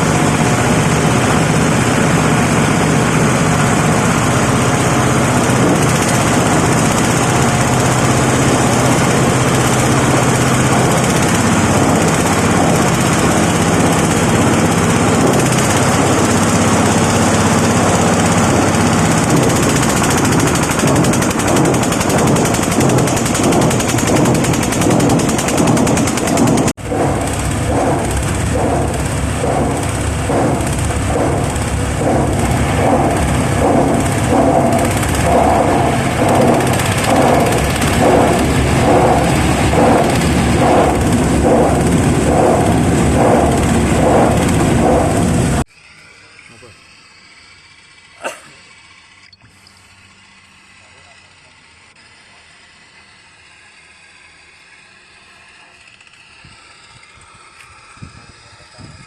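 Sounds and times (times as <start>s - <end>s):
crusher machine rattling clatter: 0.0s - 45.7s.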